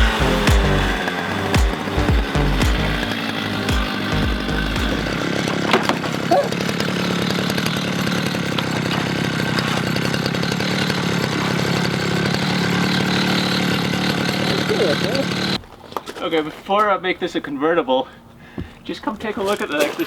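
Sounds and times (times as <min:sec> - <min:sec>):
power saw cutting sheet metal: 0:00.0 - 0:15.6.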